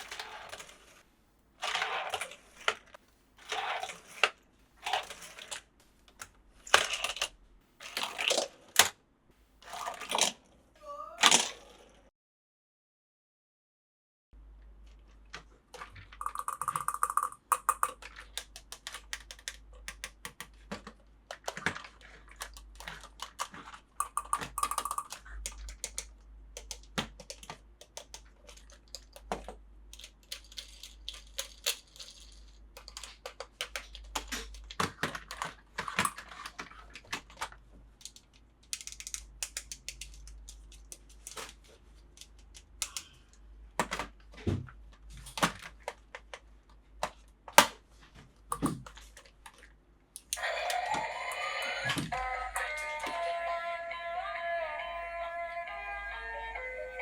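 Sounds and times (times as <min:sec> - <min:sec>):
plastic toy pieces clicking: 0:03.5 - 0:09.0, 0:15.8 - 0:44.1, 0:48.5 - 0:53.2.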